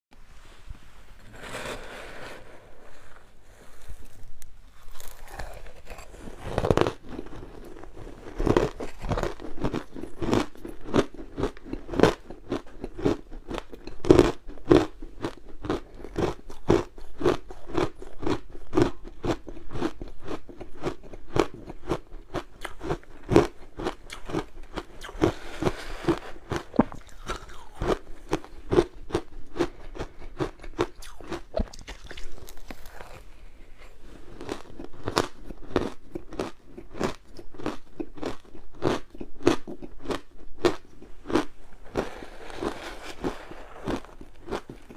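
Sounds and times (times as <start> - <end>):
crunching frozen ice: 4.8 - 33.4.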